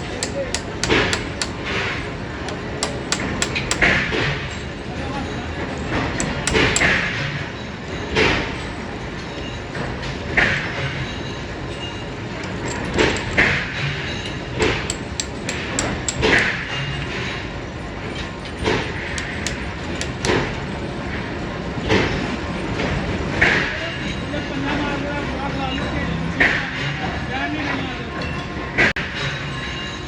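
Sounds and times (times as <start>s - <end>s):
metallic clanks and thuds: 0.0s - 1.8s, 2.4s - 4.1s, 6.2s - 7.0s, 12.4s - 13.6s, 14.8s - 16.5s, 19.0s - 20.7s
metalworking machinery running: 0.0s - 4.9s, 5.7s - 7.2s, 12.2s - 16.7s, 18.9s - 21.0s.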